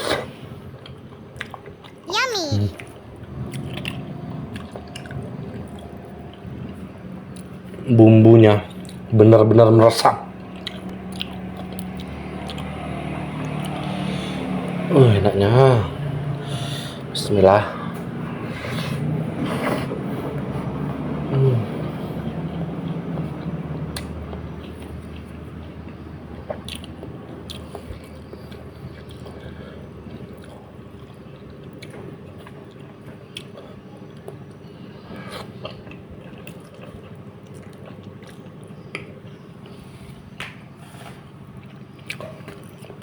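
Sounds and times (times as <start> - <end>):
chewing and mouth smacks: 3.4 - 7.8, 8.7 - 9.1, 10.4 - 12.8, 22.5 - 29.4, 30.0 - 39.8, 41.5 - 43.0.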